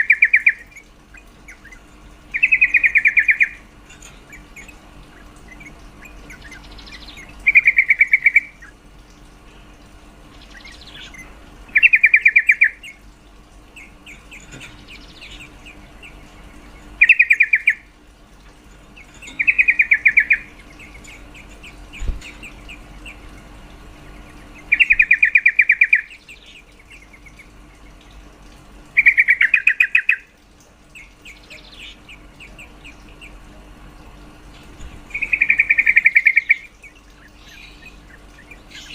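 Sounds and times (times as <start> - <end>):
bird rattling calls: 0.0 - 8.8, 10.2 - 30.3, 34.6 - 38.9
soft bird chirps: 0.0 - 8.8, 9.5 - 13.1, 13.7 - 17.9, 18.7 - 23.4, 24.0 - 28.2, 30.9 - 33.6, 35.1 - 38.9.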